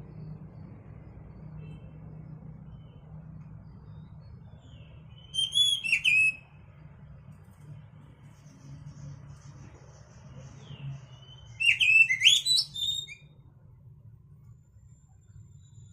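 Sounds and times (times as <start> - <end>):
steady low hum: 0.0 - 5.2
faint bird chirps: 0.0 - 6.8, 8.2 - 13.4, 14.8 - 15.9
bird whistled notes: 5.1 - 6.5, 11.2 - 13.3.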